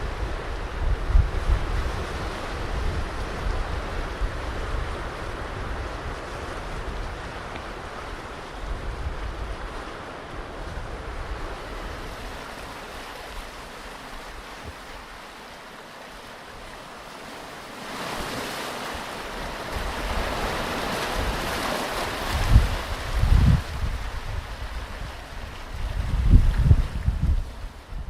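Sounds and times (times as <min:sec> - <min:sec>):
wind buffeting microphone: 0:00.0 - 0:12.6, 0:19.1 - 0:28.0
ocean surf washing in: 0:00.0 - 0:28.0.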